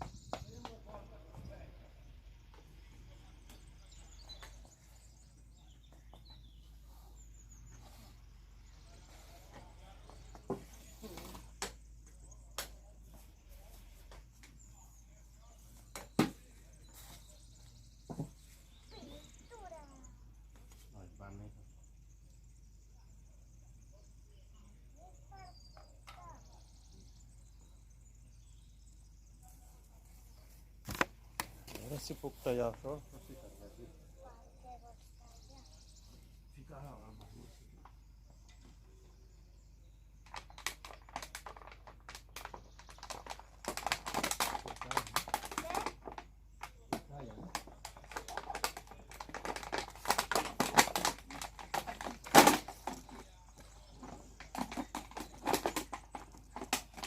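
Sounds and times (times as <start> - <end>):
faint bird chirps: 0.0 - 41.7.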